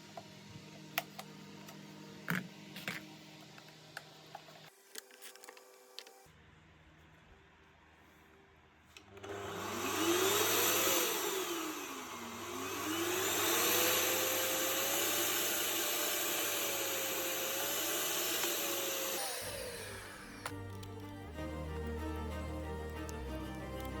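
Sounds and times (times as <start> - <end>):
vacuum motor whining: 9.0 - 24.0.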